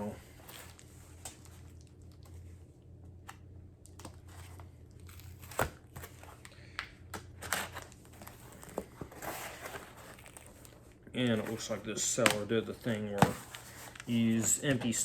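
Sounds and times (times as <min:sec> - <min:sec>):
cardboard crinkling and tearing: 0:03.8 - 0:06.5, 0:07.4 - 0:15.0.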